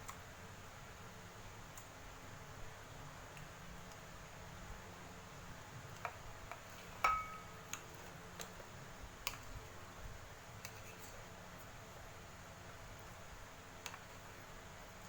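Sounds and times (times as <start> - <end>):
ringing clink: 7.1 - 7.5.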